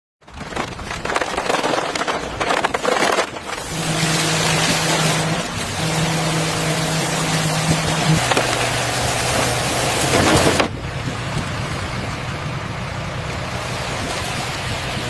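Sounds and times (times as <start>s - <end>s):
crackling clicks: 0.3s - 3.8s
rushing noise: 0.3s - 15.0s
motor humming: 3.4s - 11.5s.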